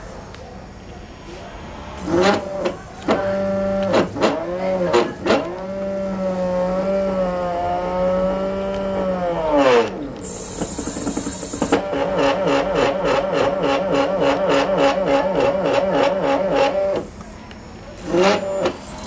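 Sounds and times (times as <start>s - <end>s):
stepper motors whining: 0.0s - 19.0s.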